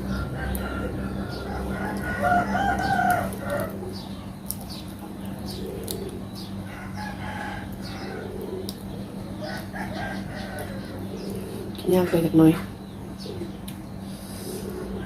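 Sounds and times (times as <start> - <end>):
chicken calls: 0.0 - 15.0
rooster crowing: 0.1 - 3.9, 6.7 - 8.4, 9.4 - 11.1.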